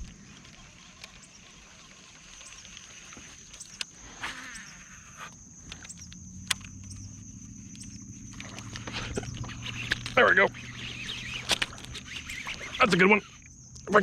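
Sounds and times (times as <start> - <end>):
insects droning: 0.0 - 14.0
sharp clicks: 5.3 - 14.0.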